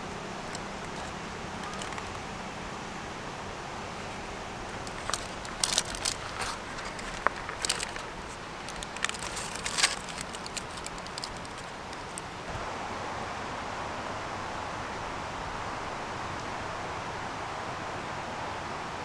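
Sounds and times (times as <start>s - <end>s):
campfire crackling: 0.0s - 12.5s
steady background hiss: 0.0s - 19.0s.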